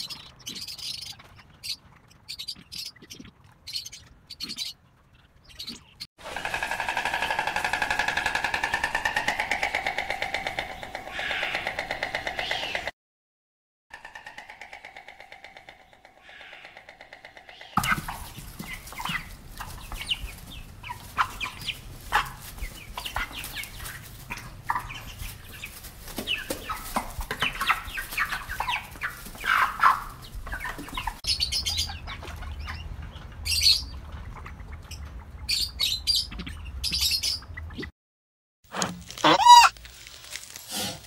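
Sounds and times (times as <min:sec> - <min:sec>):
rooster clucking: 0:39.2 - 0:39.7.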